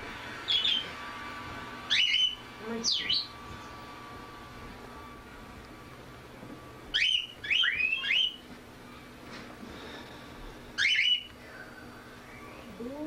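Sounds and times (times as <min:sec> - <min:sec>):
pet bird chirping: 0:00.5 - 0:01.0, 0:01.9 - 0:03.8, 0:06.9 - 0:08.4, 0:10.8 - 0:11.3.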